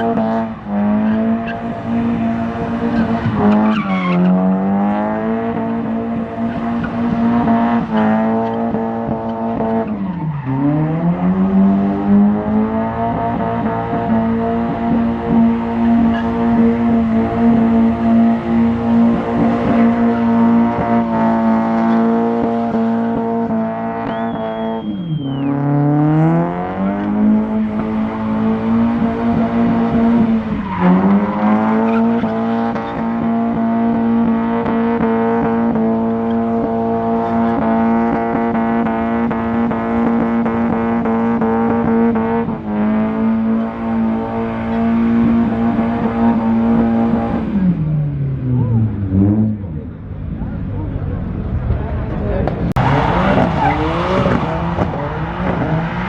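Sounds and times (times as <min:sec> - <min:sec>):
car engine at high revs: 0:00.0 - 0:56.0
tyre squeal: 0:02.9 - 0:04.4, 0:24.0 - 0:25.7, 0:52.9 - 0:54.5.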